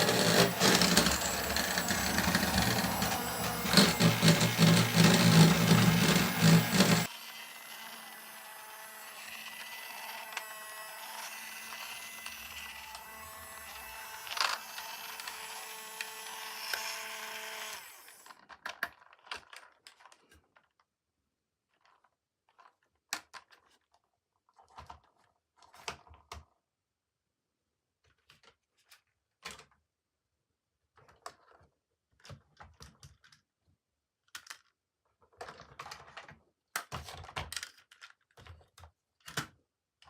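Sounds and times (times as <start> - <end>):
small motor whirring: 0.0 - 18.3.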